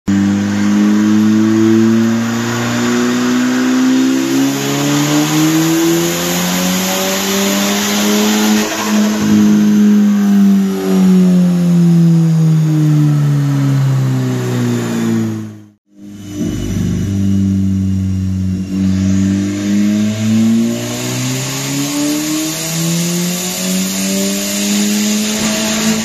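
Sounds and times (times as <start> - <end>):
car engine revving hard: 0.1 - 26.0.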